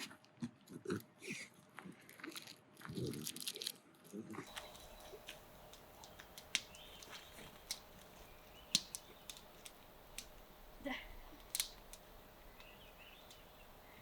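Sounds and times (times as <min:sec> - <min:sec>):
dog chewing crinkly lure: 0:01.9 - 0:08.0.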